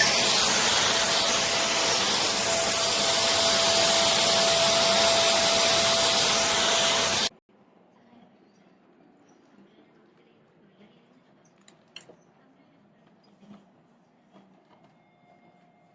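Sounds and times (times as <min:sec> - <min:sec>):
vacuum cleaner running: 0:00.0 - 0:07.3.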